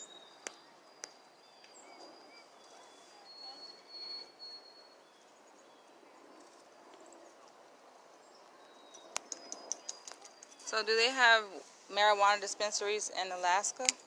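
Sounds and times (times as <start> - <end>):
faint birdsong: 0.0 - 14.0
sharp clicks: 8.9 - 10.6, 13.8 - 14.0.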